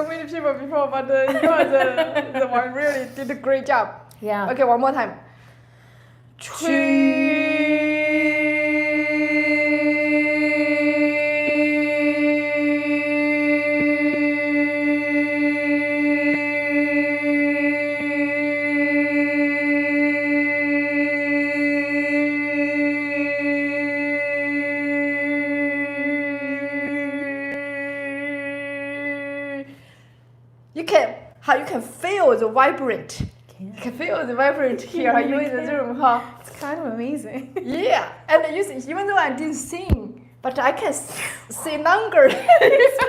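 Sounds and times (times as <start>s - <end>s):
person singing a long steady tone: 6.4s - 30.0s.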